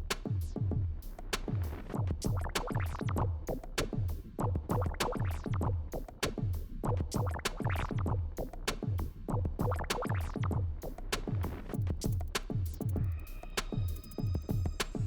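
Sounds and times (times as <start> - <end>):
deep kick drums: 0.0 - 13.2.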